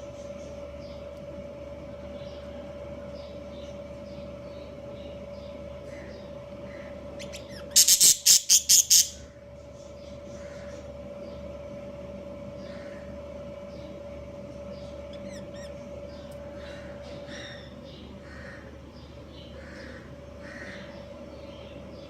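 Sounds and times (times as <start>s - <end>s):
steady hum: 0.0s - 22.0s
budgerigars calling: 5.9s - 9.3s, 15.1s - 18.7s, 19.4s - 21.0s.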